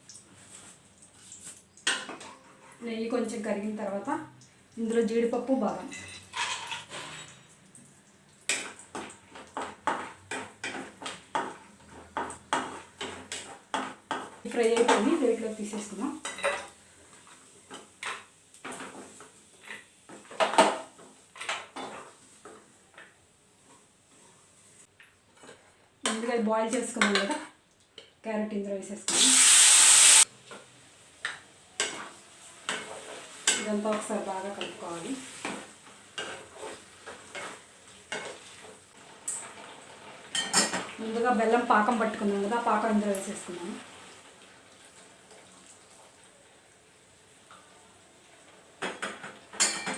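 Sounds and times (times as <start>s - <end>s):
faint sizzle: 0.0s - 49.9s
spoon scraping a pan: 1.8s - 2.8s, 5.9s - 7.5s, 31.8s - 40.9s
metal utensil scraping and clinking: 5.9s - 7.5s.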